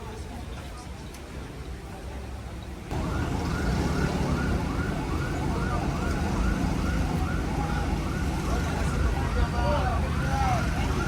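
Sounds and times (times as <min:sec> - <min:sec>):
low engine rumble: 0:02.9 - 0:11.0
siren yelping: 0:02.9 - 0:11.0.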